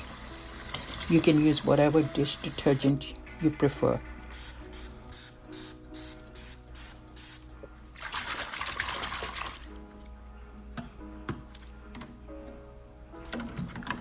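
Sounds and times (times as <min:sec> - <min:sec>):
background music: 0:00.0 - 0:14.0
liquid pouring: 0:07.9 - 0:09.8.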